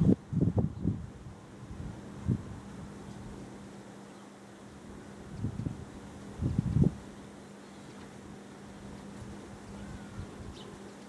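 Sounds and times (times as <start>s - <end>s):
wind buffeting microphone: 0.0s - 2.5s, 6.4s - 7.0s.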